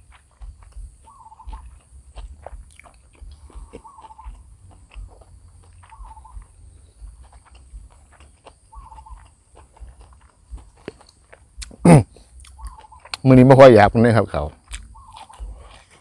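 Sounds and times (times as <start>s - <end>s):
person chewing and slurping noodles: 0.0s - 13.2s, 14.6s - 16.0s.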